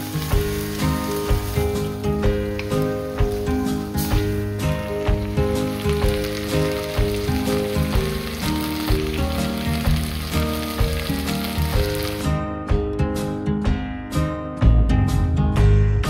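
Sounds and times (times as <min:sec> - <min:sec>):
food sizzling in a wok: 0:00.0 - 0:12.4
background music: 0:00.0 - 0:16.0.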